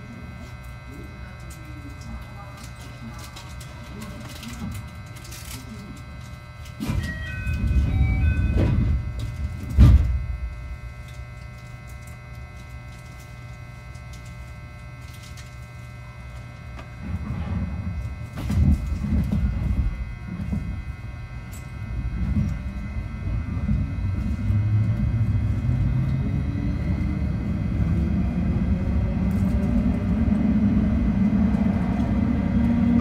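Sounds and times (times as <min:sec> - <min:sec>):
steady low hum: 0:00.0 - 0:33.0
train rumbling: 0:06.0 - 0:11.2, 0:16.3 - 0:33.0.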